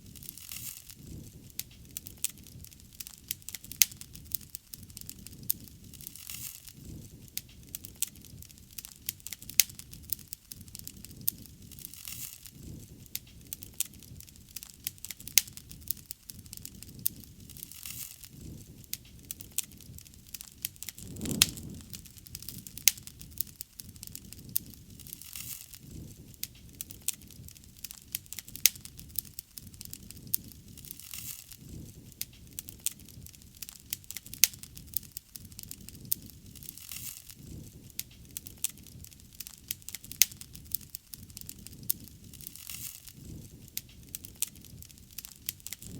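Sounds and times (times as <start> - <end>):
wood bonfire crackling: 0.0 - 45.9
low rush of flames: 19.4 - 25.1, 42.2 - 45.9.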